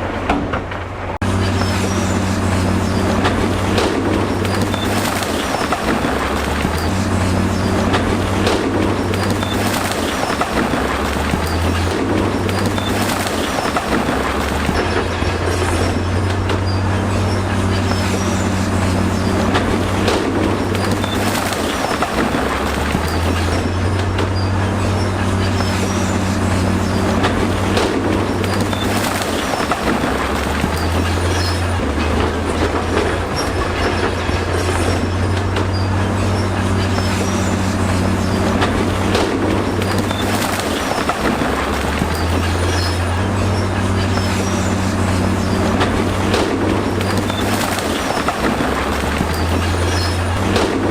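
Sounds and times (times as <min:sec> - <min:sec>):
diesel engine running: 0:00.0 - 0:50.9
steel tracks clanking: 0:00.0 - 0:50.9
track links squeaking: 0:00.7 - 0:50.9.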